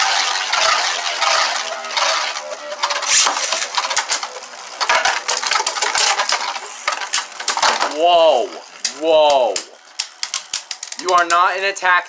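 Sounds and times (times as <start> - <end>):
spinning tops whirring: 0.0 - 12.0.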